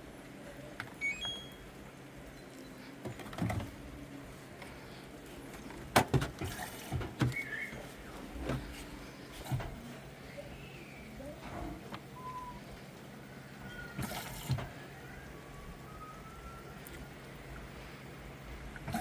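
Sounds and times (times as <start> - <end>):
washing machine beeps: 0.9 - 4.1, 6.5 - 8.1, 9.2 - 19.0.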